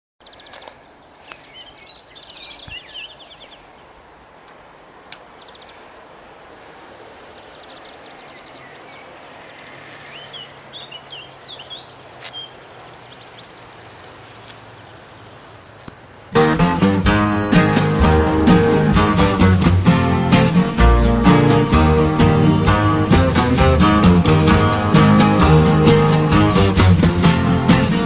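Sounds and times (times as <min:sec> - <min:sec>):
songbirds chirping and singing: 0:00.2 - 0:03.9, 0:07.5 - 0:15.0, 0:15.9 - 0:28.0
outdoor background hiss: 0:00.2 - 0:28.0
faint clicks: 0:04.4 - 0:05.3.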